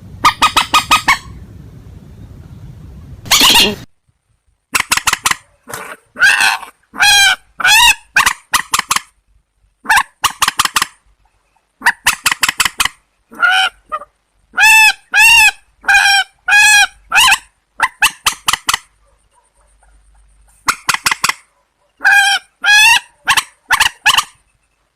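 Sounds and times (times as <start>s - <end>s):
birds honking nasal calls: 0.0s - 1.4s, 3.3s - 3.9s, 4.7s - 9.2s, 9.8s - 19.5s.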